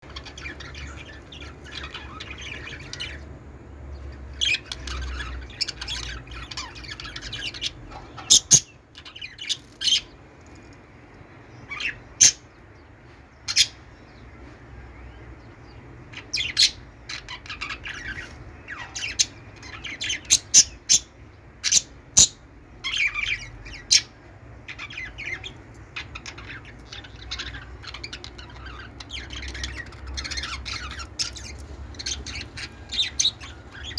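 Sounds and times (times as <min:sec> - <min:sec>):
sharp chirps and squawks: 0:00.0 - 0:03.3, 0:04.1 - 0:10.1, 0:16.2 - 0:33.9
budgies chattering: 0:00.0 - 0:10.2, 0:11.6 - 0:12.8, 0:13.5 - 0:14.2, 0:15.3 - 0:33.9.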